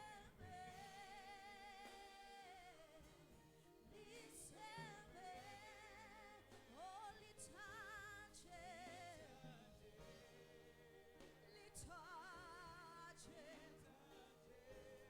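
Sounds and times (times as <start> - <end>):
person singing with vibrato: 3.9 - 15.0.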